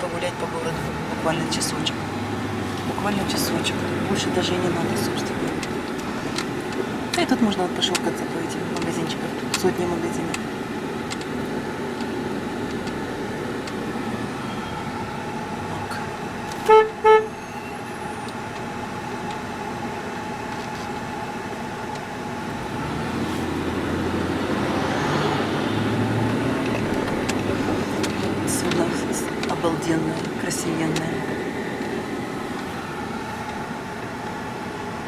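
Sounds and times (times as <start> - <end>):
road traffic noise: 0.0 - 35.0
car horn beeps: 14.4 - 15.1, 16.6 - 18.4.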